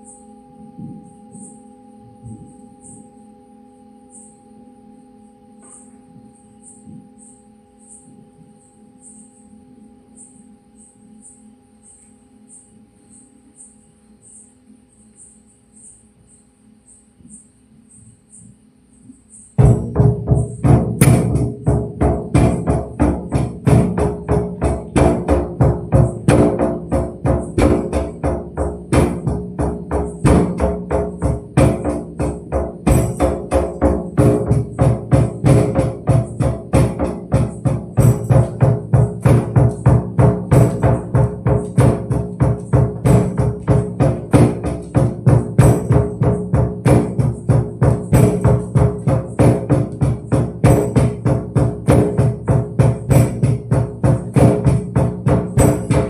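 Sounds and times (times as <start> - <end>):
sustained ringing tones: 0.0 - 17.9
tambourine jingles: 19.3 - 56.0
frame drum thuds: 19.6 - 56.0.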